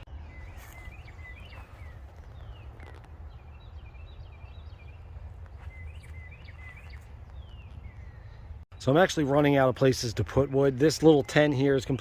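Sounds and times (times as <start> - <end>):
steady low rumble: 0.0 - 8.7
small birds chirping: 0.0 - 12.0.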